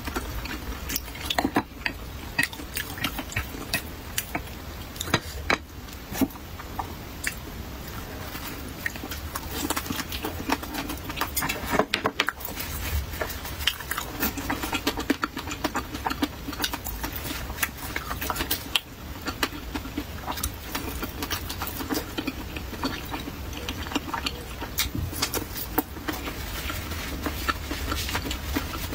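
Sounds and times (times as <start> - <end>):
person biting and chewing: 8.8 - 28.9.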